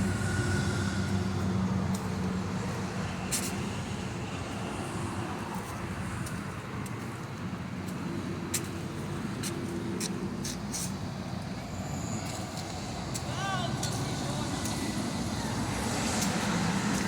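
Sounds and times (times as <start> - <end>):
diesel engine running steadily: 0.0 - 17.0.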